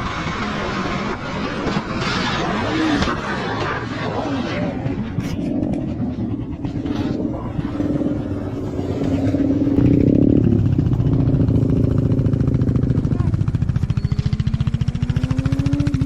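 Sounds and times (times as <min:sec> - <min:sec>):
motorcycle engine running: 0:04.7 - 0:16.0.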